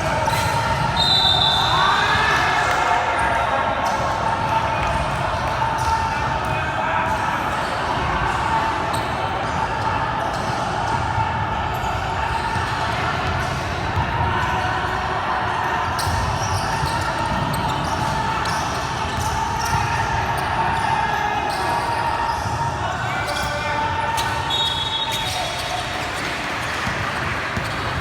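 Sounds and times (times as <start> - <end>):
basketball bouncing on court: 26.2 - 28.0.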